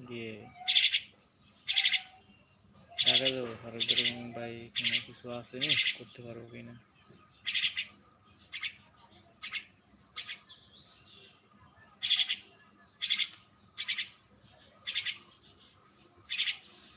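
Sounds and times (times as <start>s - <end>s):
bird scratchy calls: 0.5s - 2.2s, 2.9s - 6.1s, 7.4s - 10.4s, 12.0s - 16.9s.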